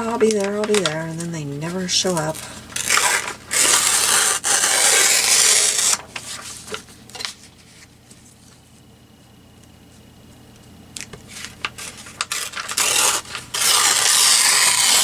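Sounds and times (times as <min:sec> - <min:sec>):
paper handling clicks and scrapes: 0:00.0 - 0:08.6, 0:11.0 - 0:15.0
paper rasping strokes: 0:01.6 - 0:06.6, 0:11.7 - 0:15.0.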